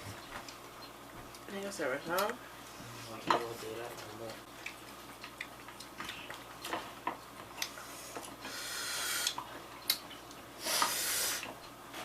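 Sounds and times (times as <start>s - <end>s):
mouth clicks and smacks eating: 4.3s - 8.4s, 9.1s - 10.4s
hissing breaths through teeth: 7.8s - 9.4s, 10.6s - 11.6s.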